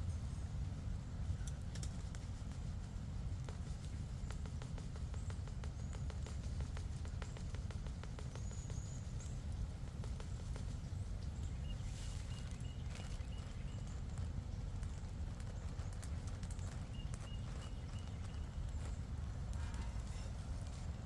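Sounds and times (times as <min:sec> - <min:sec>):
songbirds chirping: 0:00.0 - 0:21.0
light clicks and taps: 0:01.3 - 0:21.0
steady low rumble: 0:08.8 - 0:21.0.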